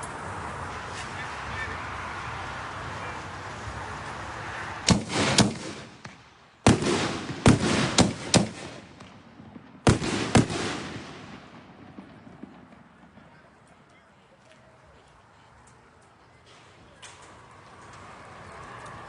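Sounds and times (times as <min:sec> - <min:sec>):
firework shell bangs: 0:04.9 - 0:13.2.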